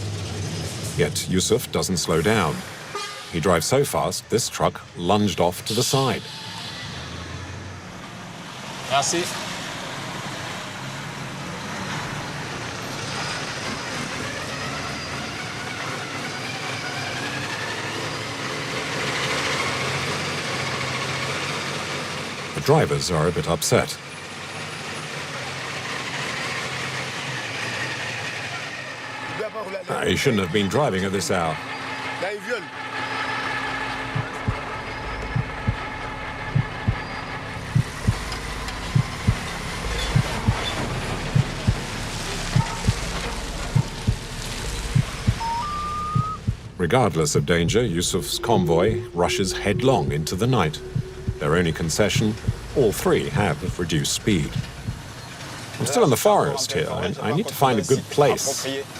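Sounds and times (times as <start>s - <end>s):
heavy truck rumbling and rattling: 0.0s - 58.9s
faint wavering squeaks: 5.7s - 8.2s, 27.2s - 57.3s
steady hum: 32.9s - 58.9s
low double thumps: 33.9s - 55.2s.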